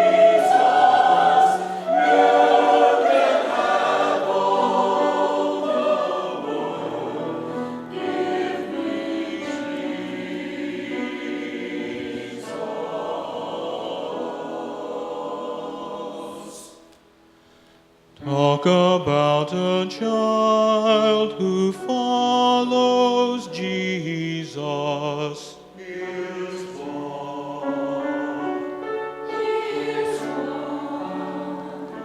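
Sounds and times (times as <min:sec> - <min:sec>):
church choir singing: 0:00.0 - 0:17.1, 0:18.2 - 0:32.0.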